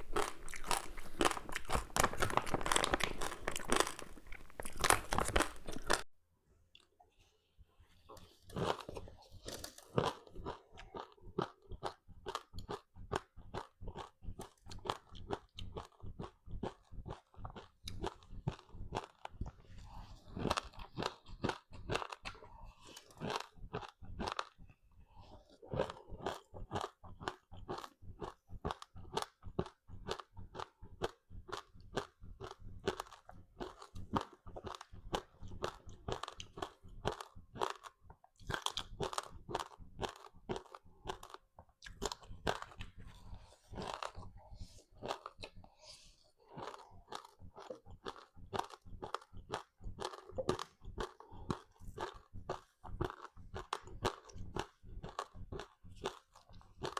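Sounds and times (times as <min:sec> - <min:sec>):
crunching crispy snack: 0:00.0 - 0:06.0, 0:25.8 - 0:44.3, 0:46.5 - 0:56.9.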